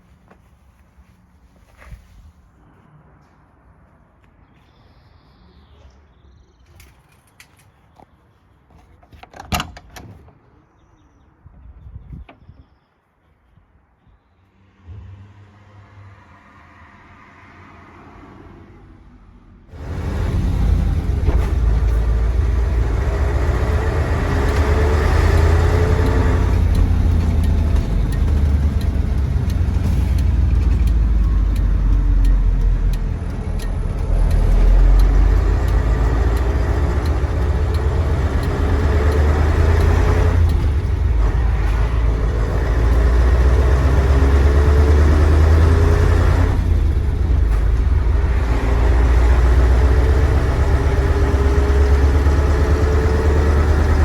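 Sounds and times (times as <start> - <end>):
diesel truck engine under load: 19.7 - 54.0.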